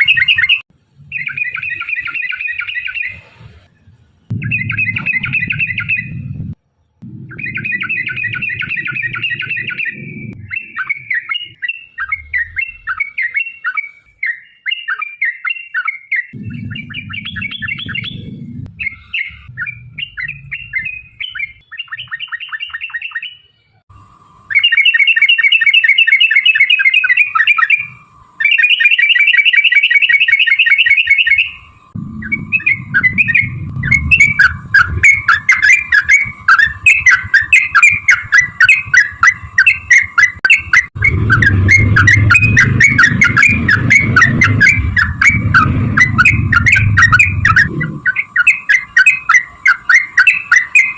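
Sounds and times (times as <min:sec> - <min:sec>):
birds chattering and trilling: 0:00.0 - 0:50.9
low rumble: 0:03.1 - 0:13.1, 0:16.4 - 0:21.7, 0:31.7 - 0:48.4.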